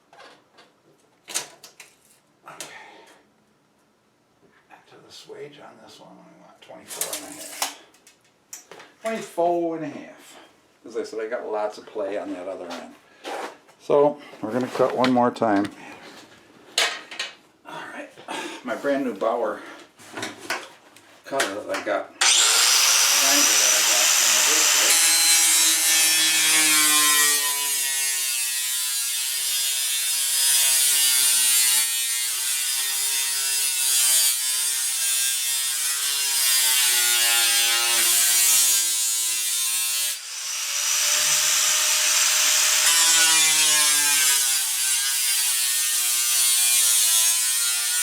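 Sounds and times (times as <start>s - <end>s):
angle grinder cutting metal: 22.2s - 48.0s.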